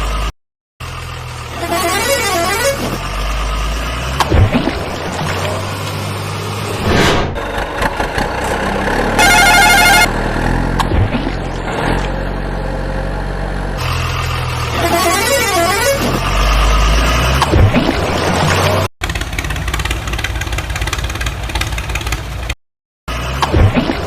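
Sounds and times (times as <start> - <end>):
low engine hum: 0.0 - 24.0
loud horn blast: 1.5 - 3.0, 9.0 - 10.8, 14.6 - 16.4.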